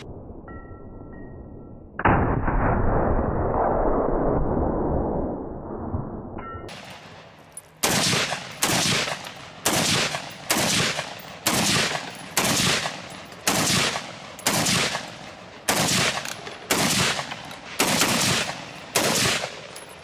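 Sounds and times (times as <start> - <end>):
gunshots with echo: 7.8 - 19.8.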